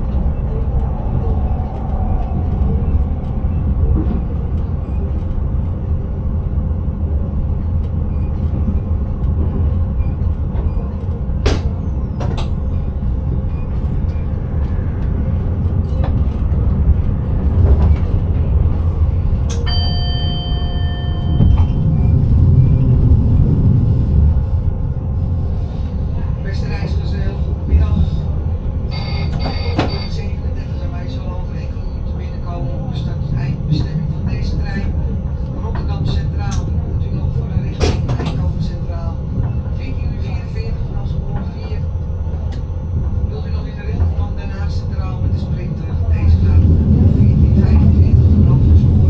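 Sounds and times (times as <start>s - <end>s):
train low rumble: 0.0s - 49.0s.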